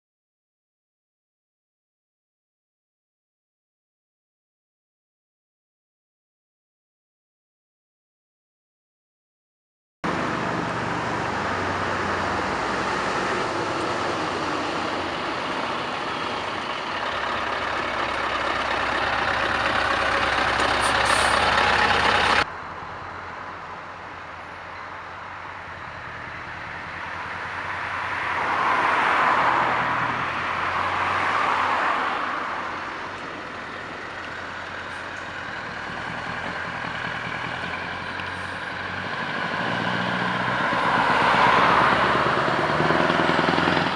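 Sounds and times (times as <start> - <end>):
diesel truck engine running: 10.0 - 27.6, 32.6 - 43.9
truck passing by: 10.0 - 43.9.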